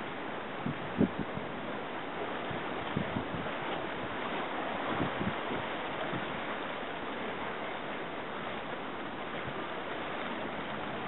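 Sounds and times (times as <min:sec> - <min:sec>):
sea water washing: 0:00.0 - 0:11.0
wind on microphone: 0:00.6 - 0:06.6, 0:09.3 - 0:11.0.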